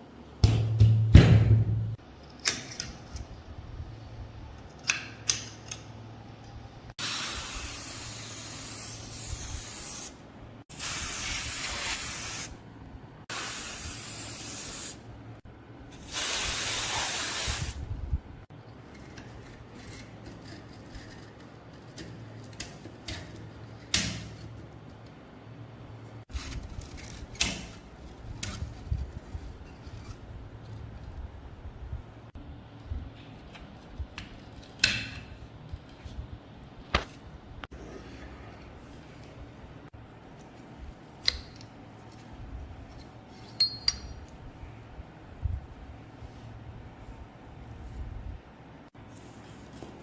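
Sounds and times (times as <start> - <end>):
loud thud with low hum: 0.4 - 2.0
spray hissing: 7.0 - 12.6, 13.3 - 15.0, 16.1 - 17.8.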